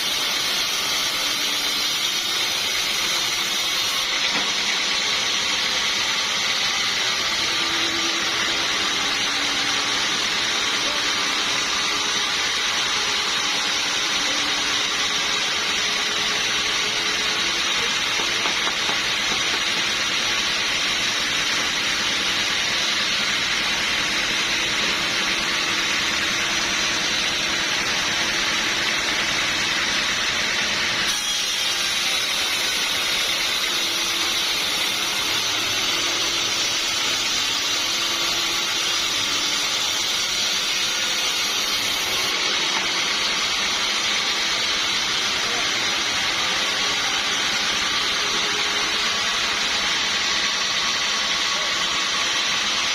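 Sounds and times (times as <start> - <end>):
sawmill machinery hissing: 0.0 - 52.9.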